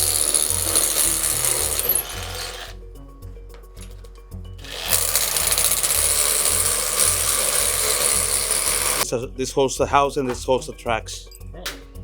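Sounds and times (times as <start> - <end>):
power drill running: 0.0 - 2.8, 4.6 - 9.0.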